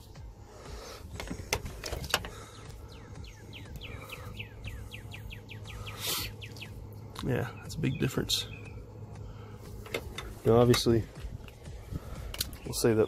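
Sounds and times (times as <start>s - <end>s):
low steady hum: 0.0s - 13.0s
small bird chirping: 2.4s - 9.2s.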